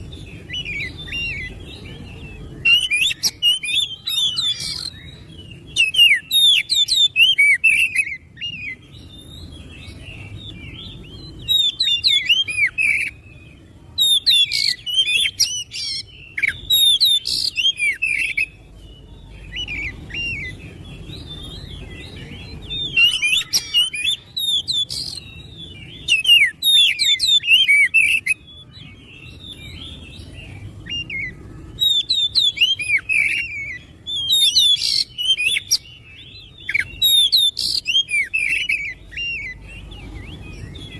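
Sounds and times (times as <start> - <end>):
bird singing high whistles: 30.9 - 40.9.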